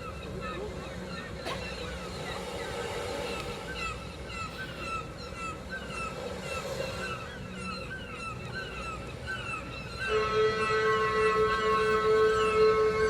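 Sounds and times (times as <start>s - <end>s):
crowd murmur: 0.0s - 6.1s
chirping bird-like calls: 0.0s - 13.0s.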